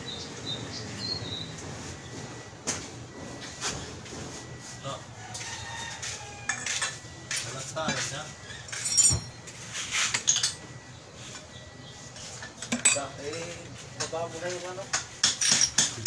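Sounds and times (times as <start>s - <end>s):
voices talking: 0.0s - 15.1s
metal clinking and knocking: 8.8s - 9.4s, 12.6s - 13.5s, 15.2s - 16.0s.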